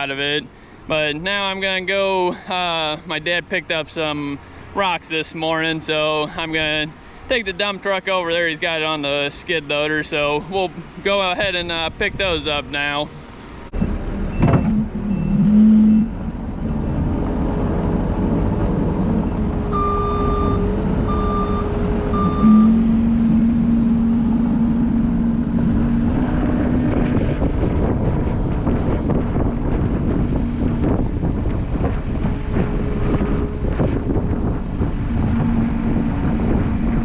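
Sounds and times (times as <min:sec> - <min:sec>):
truck engine running: 0:09.7 - 0:37.0
backup alarm beeping: 0:19.7 - 0:23.9.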